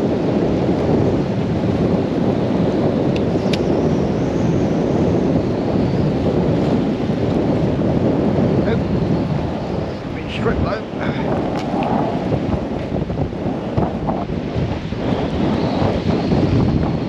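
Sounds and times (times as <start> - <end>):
storm wind buffeting microphone: 0.0 - 17.0.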